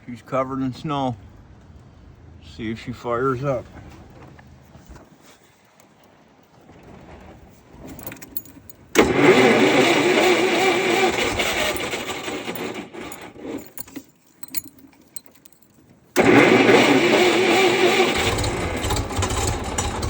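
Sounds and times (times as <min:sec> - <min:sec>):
engine starter cranking: 0:07.8 - 0:15.6, 0:16.2 - 0:20.0.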